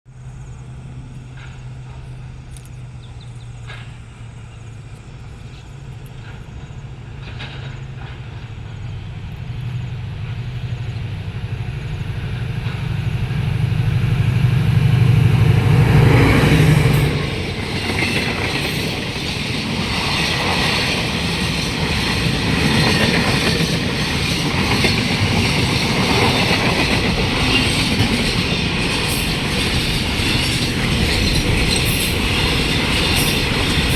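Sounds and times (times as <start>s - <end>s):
locomotive engine drone: 0.1s - 33.9s
freight wagons rumbling and clattering: 1.2s - 33.9s.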